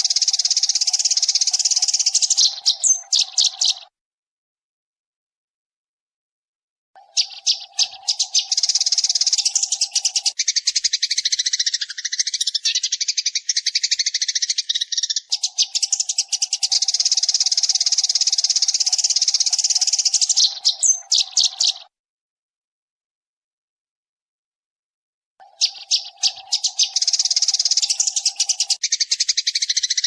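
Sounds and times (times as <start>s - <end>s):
sparrow chirping: 0.0s - 3.9s, 7.0s - 21.9s, 25.4s - 30.0s.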